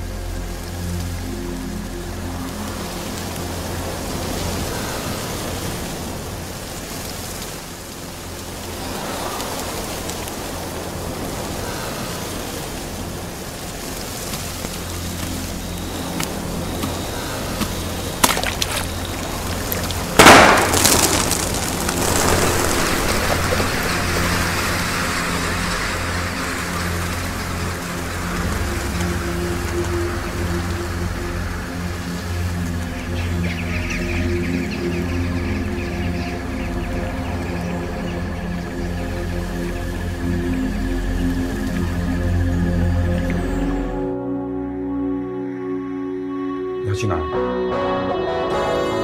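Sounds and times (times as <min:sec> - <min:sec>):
rain-like hiss: 0:00.0 - 0:44.0
low music drone: 0:00.0 - 0:49.0
loud crash: 0:20.2 - 0:24.1.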